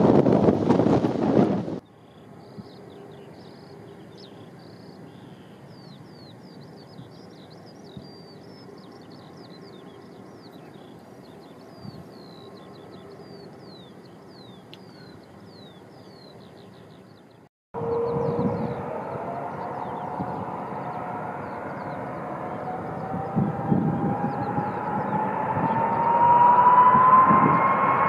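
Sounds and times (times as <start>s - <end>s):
distant low rumble: 0.0s - 28.0s
small birds chirping: 1.8s - 18.9s.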